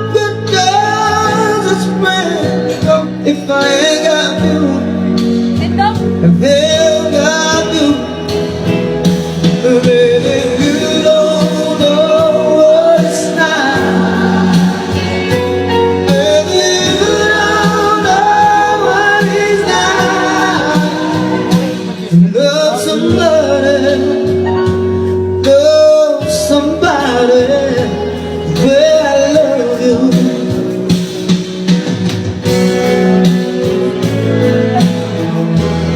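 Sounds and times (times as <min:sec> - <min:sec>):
young man singing: 0:00.0 - 0:31.8
instrumental accompaniment: 0:00.0 - 0:35.9.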